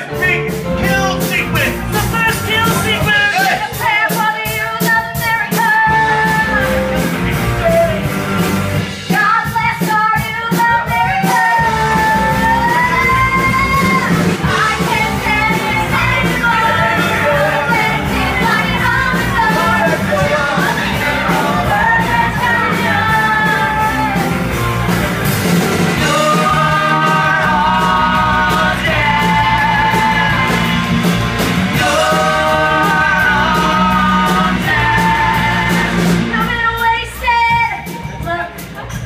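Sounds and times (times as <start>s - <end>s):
rock band with drum beat: 0.0s - 39.0s
woman singing rock song: 9.1s - 24.4s.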